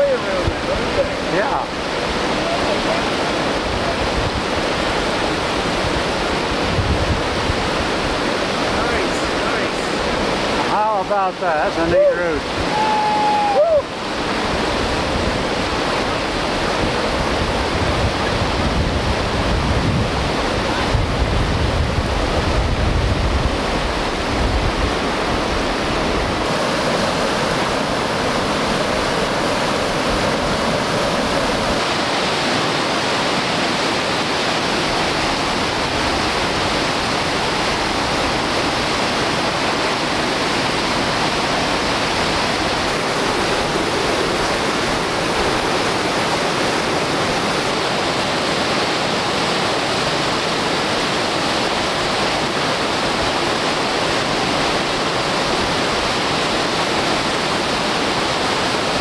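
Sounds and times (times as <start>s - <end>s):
whitewater rapids rushing: 0.0s - 59.0s.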